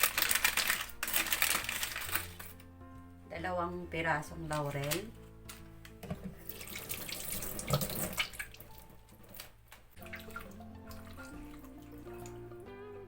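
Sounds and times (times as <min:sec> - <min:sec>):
water running from tap into sink: 0:06.0 - 0:12.7.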